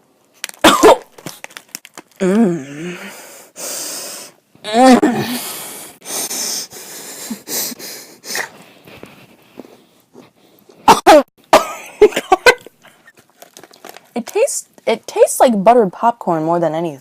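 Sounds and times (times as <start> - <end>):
person coughing: 0.6 - 1.1, 10.8 - 12.6
breathy huffs: 2.2 - 10.6.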